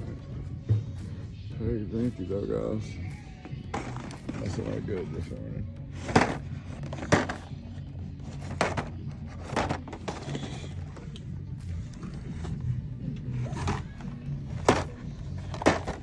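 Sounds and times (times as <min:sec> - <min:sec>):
background music over speakers: 0:00.0 - 0:16.0.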